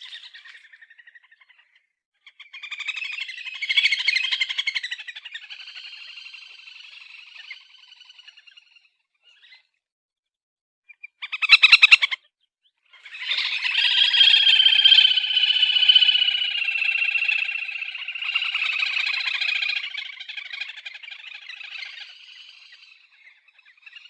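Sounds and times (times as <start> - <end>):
grebe trilling call: 13.1 - 22.7.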